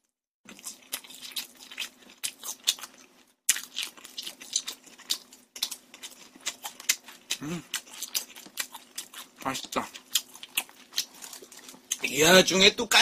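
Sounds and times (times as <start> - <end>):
chewing crispy fried chicken: 0.5 - 12.5.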